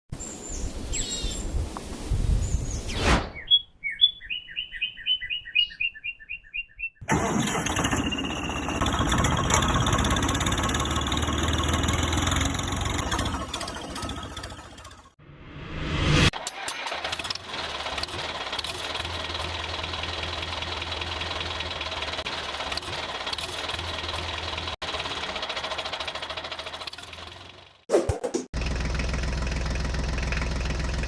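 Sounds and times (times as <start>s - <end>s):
engine starting and running: 7.0s - 31.0s
rising whoosh: 15.2s - 16.3s.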